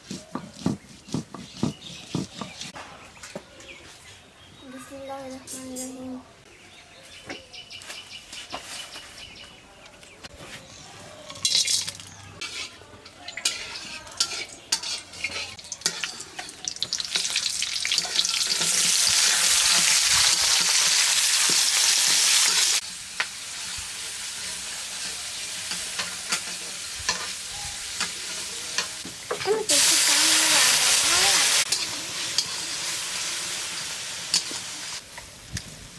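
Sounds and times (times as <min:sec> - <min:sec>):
stirring knocks and scrapes: 0:00.0 - 0:04.1, 0:10.2 - 0:17.3
food sizzling in hot oil: 0:11.4 - 0:35.5.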